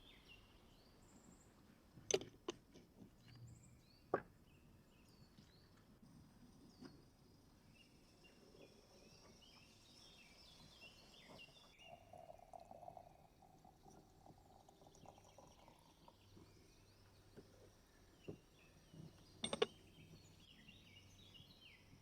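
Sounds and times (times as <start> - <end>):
songbird chirping: 6.6 - 22.0.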